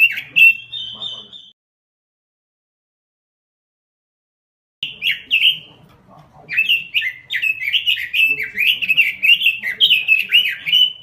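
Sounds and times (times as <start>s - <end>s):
songbird whistling and warbling: 0.0s - 1.6s, 4.8s - 5.7s, 6.5s - 11.0s.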